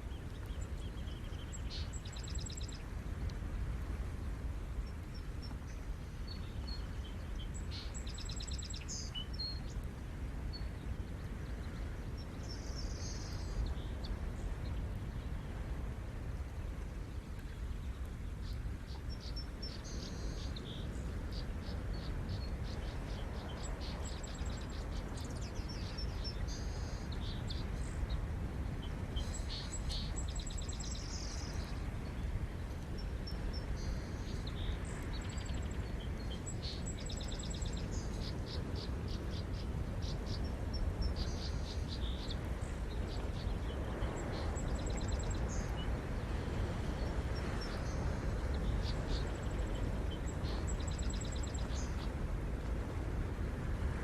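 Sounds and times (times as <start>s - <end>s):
small birds chirping: 28.8s - 32.2s, 32.9s - 46.0s.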